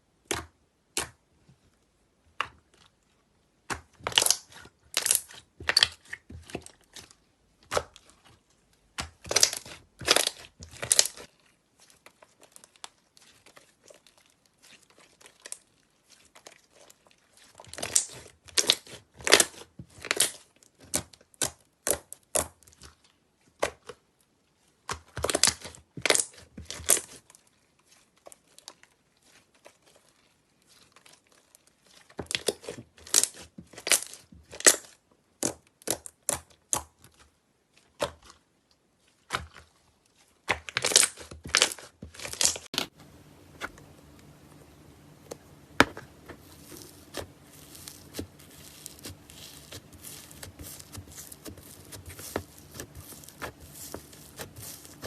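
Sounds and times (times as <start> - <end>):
slime crackling and popping: 3.8 - 6.2, 9.0 - 11.3, 17.6 - 22.6, 24.9 - 27.3, 40.5 - 42.9, 45.0 - 55.0.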